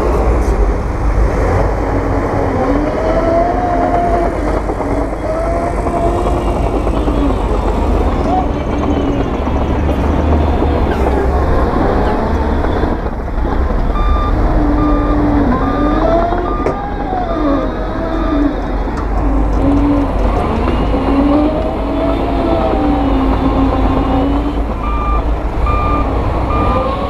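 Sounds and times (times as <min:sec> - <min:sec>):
diesel construction machinery: 0:00.0 - 0:27.0
reversing alarm beeping: 0:13.8 - 0:18.6, 0:24.8 - 0:27.0.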